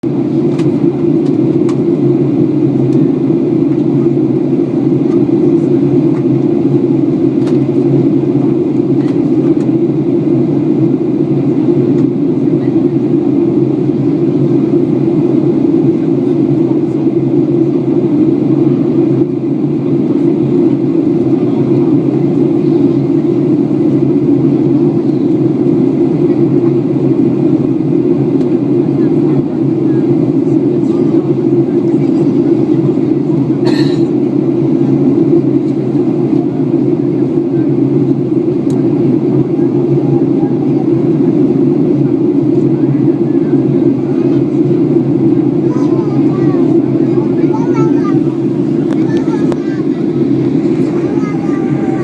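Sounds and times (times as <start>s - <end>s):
airplane cabin engine drone: 0.0s - 52.0s.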